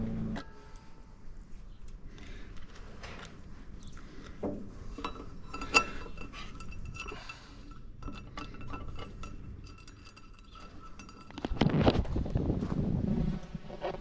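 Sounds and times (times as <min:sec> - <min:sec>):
light metal clinks and taps: 0:03.8 - 0:11.7.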